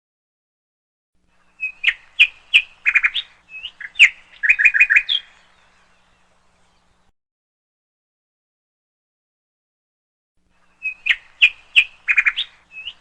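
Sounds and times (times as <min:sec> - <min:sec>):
songbird chirping: 0:01.2 - 0:07.1, 0:10.5 - 0:13.0.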